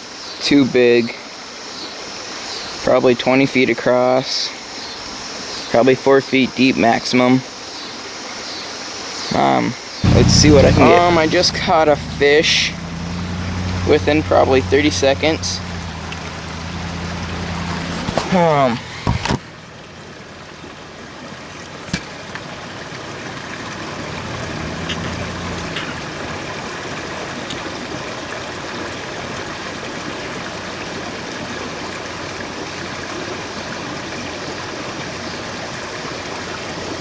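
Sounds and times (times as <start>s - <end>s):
creek water running: 0.0s - 37.0s
low hum: 10.0s - 21.0s.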